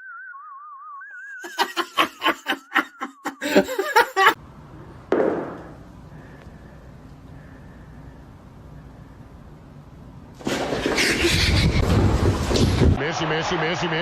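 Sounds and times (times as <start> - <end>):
rapid laughter: 1.4 - 4.4, 10.8 - 11.9.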